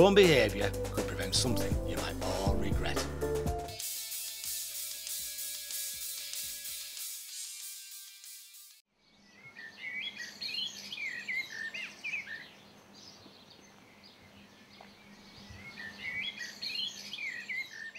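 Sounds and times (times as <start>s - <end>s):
songbirds chirping and warbling: 8.9s - 17.9s.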